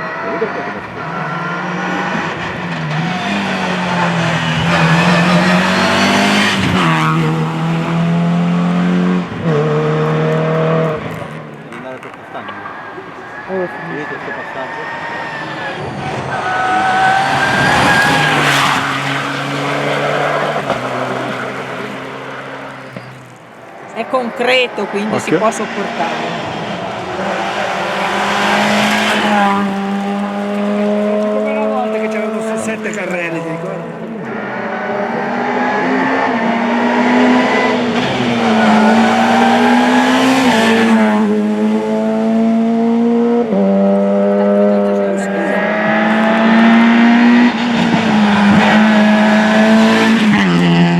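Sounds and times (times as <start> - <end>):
tyres squealing: 0.0 - 7.8, 11.0 - 34.6
rally car engine: 0.0 - 50.9.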